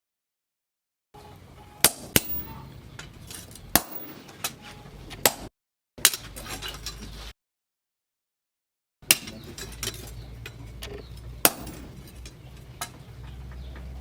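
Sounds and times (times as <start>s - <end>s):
low workshop background: 1.2s - 7.3s, 9.0s - 14.0s
hammer tapping metal: 1.8s - 2.7s
metal clink: 2.2s - 2.7s.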